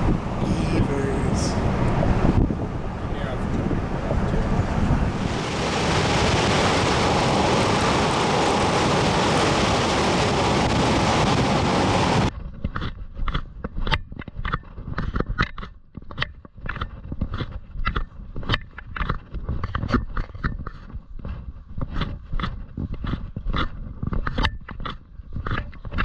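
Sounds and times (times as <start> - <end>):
wind buffeting microphone: 0.0 - 12.3.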